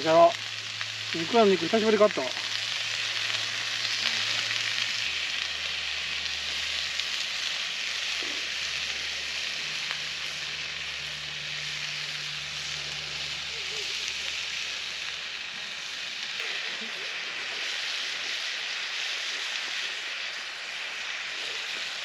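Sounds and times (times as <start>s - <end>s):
meat sizzling in a pan: 0.0s - 22.0s.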